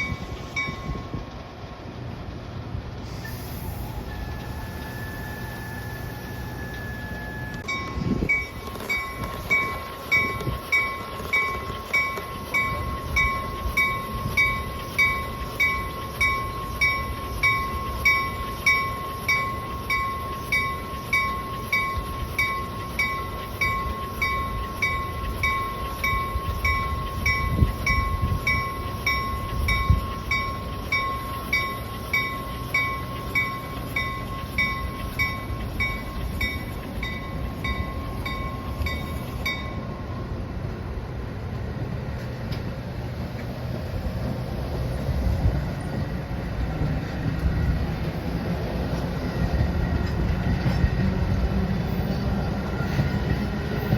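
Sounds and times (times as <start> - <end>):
crossing bell dinging: 0.0 - 1.4, 4.1 - 40.9
train rumble: 0.0 - 53.9.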